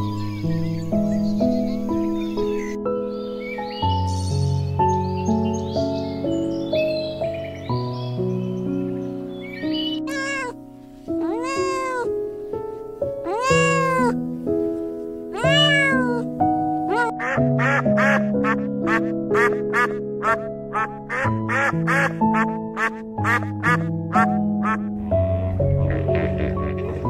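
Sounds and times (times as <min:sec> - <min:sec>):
background music with held tones: 0:00.0 - 0:27.0
duck quacking: 0:10.1 - 0:10.5, 0:11.2 - 0:12.1, 0:13.3 - 0:14.2, 0:15.4 - 0:16.2, 0:16.9 - 0:27.0
cat meowing: 0:10.1 - 0:10.6, 0:11.2 - 0:12.1, 0:13.2 - 0:14.2, 0:15.3 - 0:16.3, 0:16.9 - 0:17.3.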